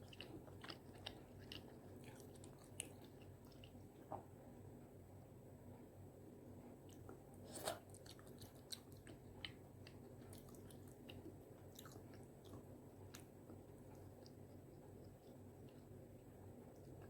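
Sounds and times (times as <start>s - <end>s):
wet mouth clicks chewing: 0.0s - 3.9s, 7.8s - 16.0s.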